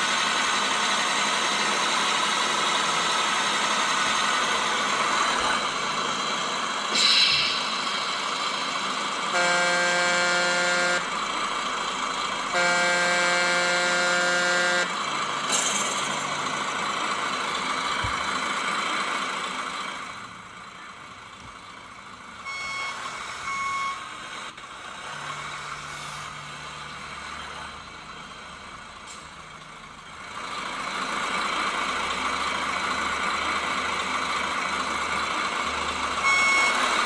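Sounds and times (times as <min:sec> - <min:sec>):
truck diesel engine running: 0:00.0 - 0:37.0
short air hiss: 0:06.9 - 0:09.0
air horn blasts: 0:07.6 - 0:11.5, 0:12.4 - 0:15.0, 0:22.4 - 0:24.1, 0:36.0 - 0:37.0.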